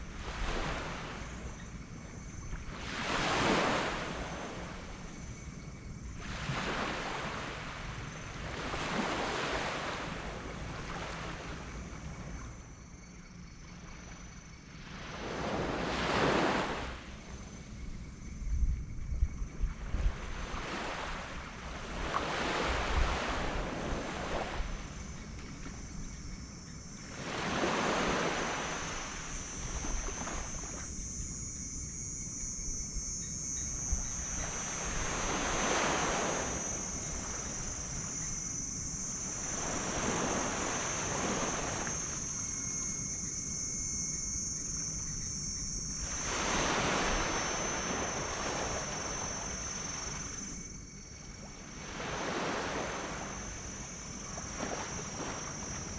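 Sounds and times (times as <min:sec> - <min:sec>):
waves breaking on sand beach: 0:00.0 - 0:01.6, 0:02.4 - 0:05.2, 0:06.2 - 0:11.7, 0:14.8 - 0:17.2, 0:19.9 - 0:25.5, 0:27.0 - 0:31.1, 0:33.7 - 0:43.0, 0:45.9 - 0:50.7, 0:51.4 - 0:55.9
high-pitched hiss: 0:11.1 - 0:55.9.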